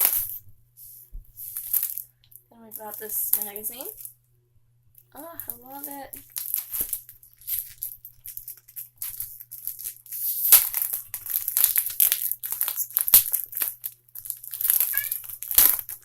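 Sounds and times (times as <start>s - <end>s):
plastic packaging crinkling: 1.4s - 4.1s, 5.3s - 16.0s
pet crying: 14.8s - 15.2s.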